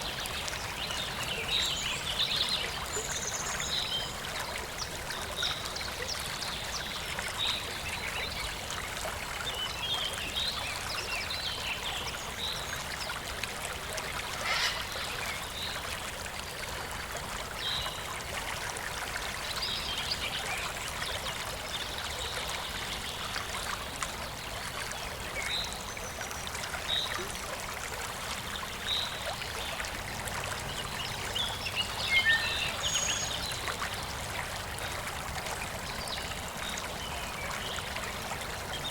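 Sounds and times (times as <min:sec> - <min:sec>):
stream water running: 0:00.0 - 0:38.9
birds chirping: 0:14.4 - 0:15.4.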